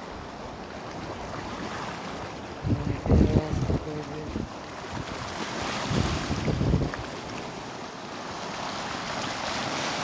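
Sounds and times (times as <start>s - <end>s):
sea waves on rocky shore: 0.0s - 10.0s
wind buffeting microphone: 2.6s - 7.4s.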